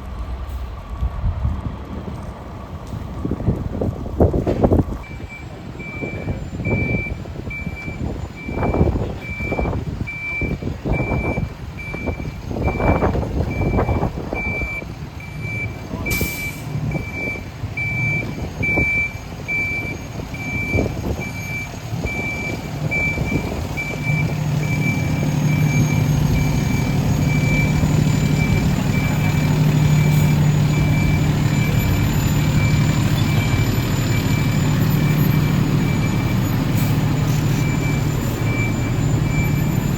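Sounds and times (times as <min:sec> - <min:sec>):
diesel engine: 0:00.0 - 0:39.9
reversing alarm beeping: 0:05.0 - 0:39.9
brief hiss: 0:16.1 - 0:16.7.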